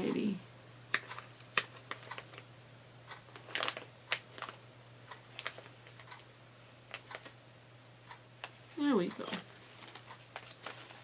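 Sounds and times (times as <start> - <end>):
bag crinkling and rustling: 3.3 - 4.6, 9.2 - 11.0.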